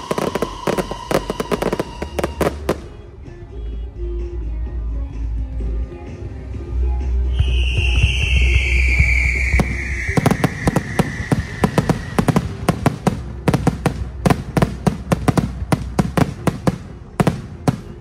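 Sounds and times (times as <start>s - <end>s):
high whistle dropping in pitch: 0.0s - 2.5s, 7.3s - 12.5s
fireworks bangs: 0.0s - 3.0s, 7.4s - 18.0s.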